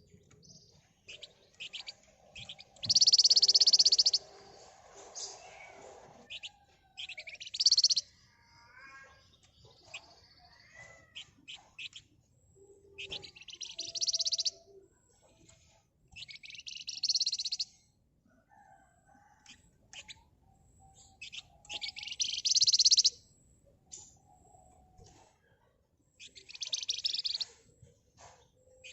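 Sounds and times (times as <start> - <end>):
songbird rattling trills: 1.0 - 4.6, 6.3 - 8.0, 12.9 - 14.6, 16.2 - 17.6, 21.1 - 23.2, 26.2 - 27.6
bird chirps and whistled notes: 1.1 - 4.3, 6.3 - 8.1, 9.8 - 14.8, 16.1 - 17.8, 20.8 - 23.2, 26.2 - 27.7.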